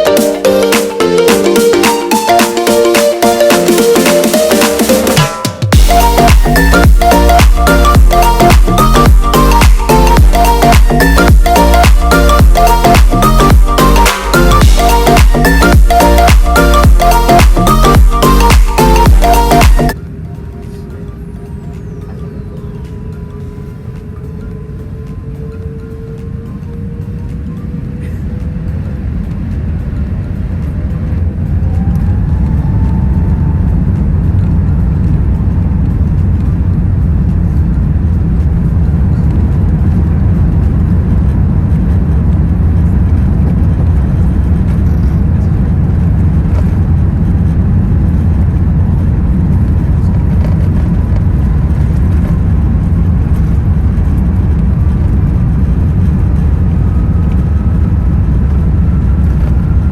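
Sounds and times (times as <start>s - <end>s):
rising engine whines: 0.0s - 59.9s
jet engines roaring in cabin: 19.9s - 59.9s.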